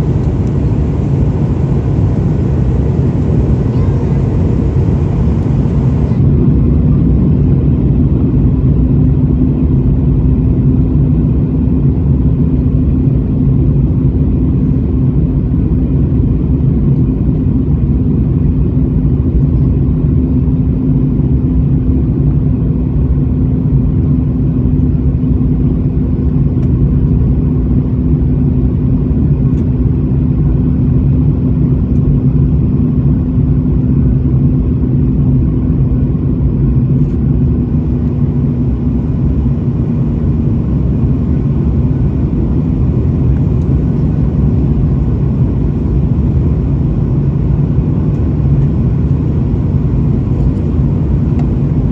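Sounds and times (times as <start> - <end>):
airliner engine drone: 0.0 - 51.9.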